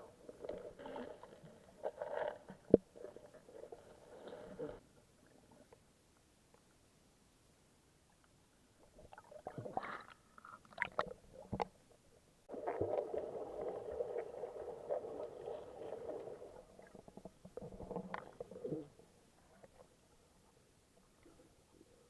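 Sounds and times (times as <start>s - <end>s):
water splashing and gurgling: 8.9s - 11.6s.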